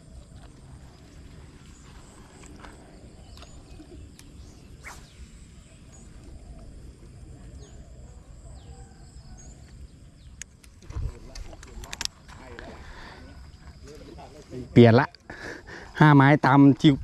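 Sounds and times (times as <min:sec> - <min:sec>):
faint bird chirps: 0:00.1 - 0:11.1
short falling whistles: 0:04.8 - 0:05.4.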